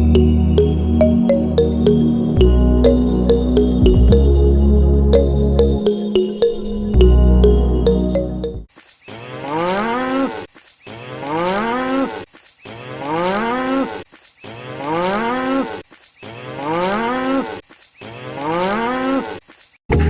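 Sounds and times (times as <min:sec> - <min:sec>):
cow mooing: 0:09.2 - 0:10.4, 0:11.1 - 0:12.2, 0:16.4 - 0:19.3.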